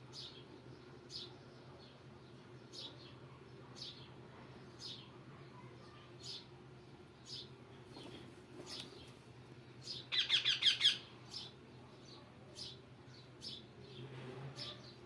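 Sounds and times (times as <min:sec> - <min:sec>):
parrot chirping: 0:10.1 - 0:11.1.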